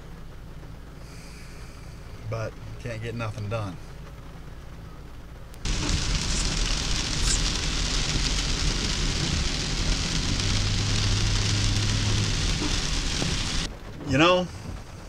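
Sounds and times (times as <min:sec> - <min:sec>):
rain on a hard surface: 0:00.0 - 0:15.0
low steady hum: 0:04.2 - 0:14.0.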